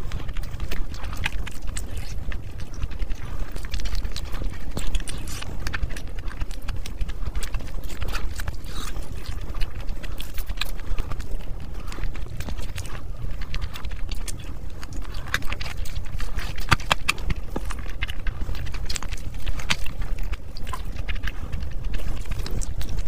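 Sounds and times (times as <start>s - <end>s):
steady low rumble: 0.0s - 23.0s
wet chewing and smacking: 0.0s - 23.0s.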